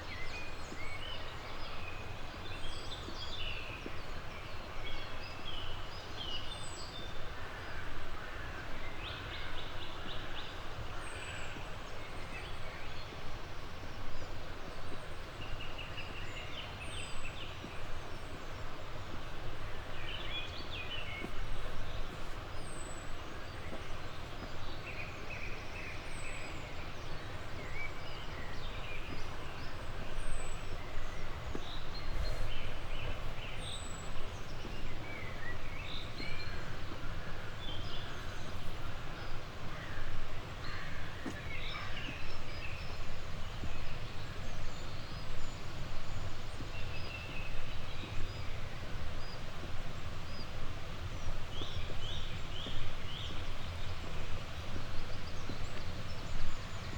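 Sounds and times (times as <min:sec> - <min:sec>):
outdoor background noise: 0:00.0 - 0:56.9.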